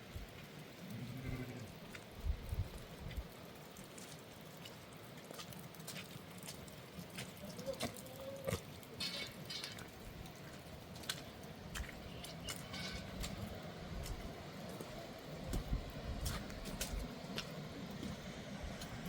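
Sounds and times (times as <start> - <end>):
light rain pattering: 0.0 - 19.0
drips and small knocks: 3.6 - 13.5.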